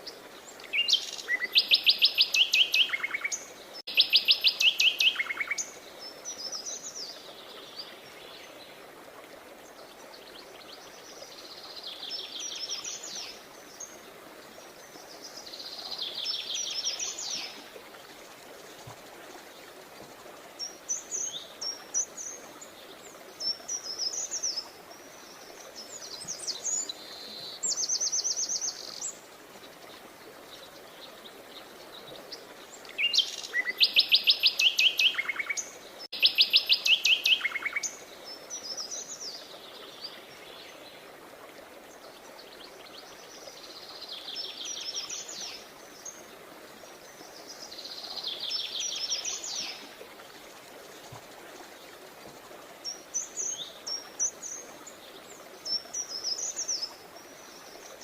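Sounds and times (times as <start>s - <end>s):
songbird trills: 0.6s - 6.9s, 32.8s - 40.1s.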